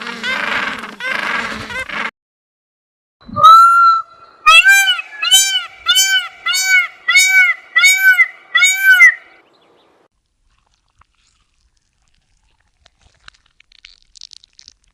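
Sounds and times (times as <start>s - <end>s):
animal high calls: 3.3s - 9.3s.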